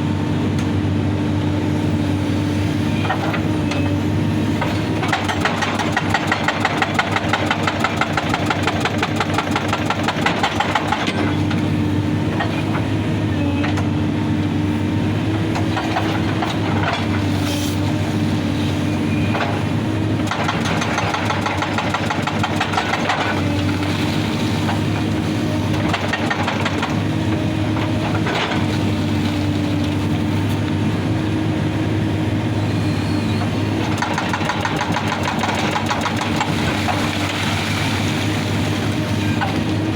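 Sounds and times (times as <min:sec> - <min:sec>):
excavator diesel engine running: 0:00.0 - 0:39.9
hydraulic rock breaker hammering: 0:04.5 - 0:11.5, 0:20.2 - 0:25.0, 0:25.6 - 0:27.0, 0:33.8 - 0:39.8.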